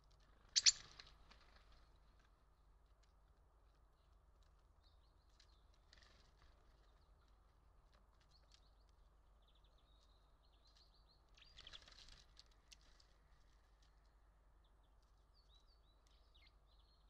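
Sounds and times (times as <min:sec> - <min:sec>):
small birds chirping: 0:00.4 - 0:01.0, 0:08.3 - 0:12.2.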